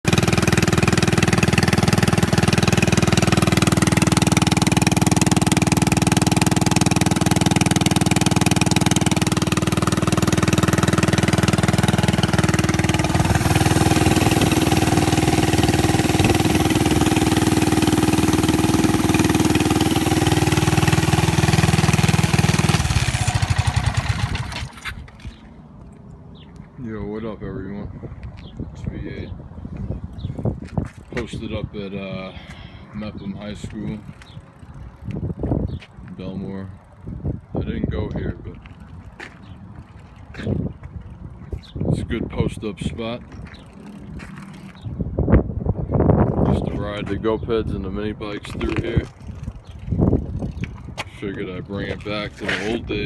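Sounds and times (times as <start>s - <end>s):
mini bike engine running: 0.0s - 25.2s, 33.6s - 35.8s, 48.4s - 53.0s.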